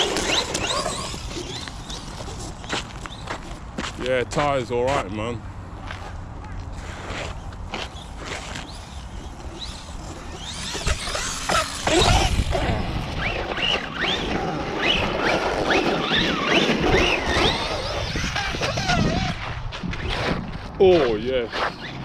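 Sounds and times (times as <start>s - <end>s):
electric motor whining: 0.0s - 3.3s, 6.9s - 20.6s
tyres rumbling: 0.0s - 22.0s
wind: 0.0s - 22.0s.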